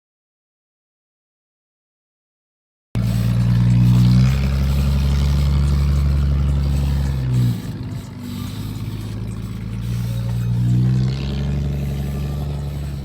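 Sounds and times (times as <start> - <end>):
truck engine running: 3.0 - 13.0.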